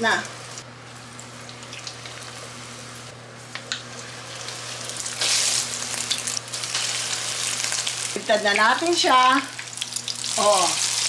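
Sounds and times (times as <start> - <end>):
pork chops sizzling in oil: 3.8 - 11.0.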